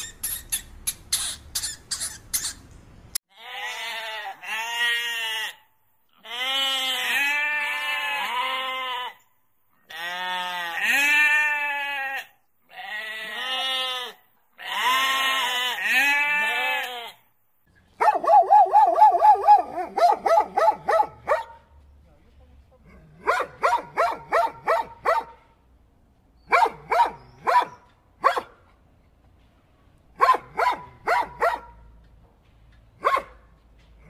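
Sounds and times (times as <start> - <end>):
short sharp squeaks: 0.0 - 2.8
goat bleating: 3.3 - 9.2, 9.8 - 17.2.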